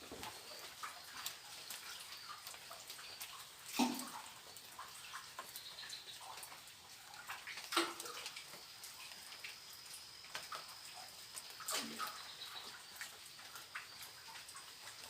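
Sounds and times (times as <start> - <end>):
small knocks and rustles: 0.0 - 3.2.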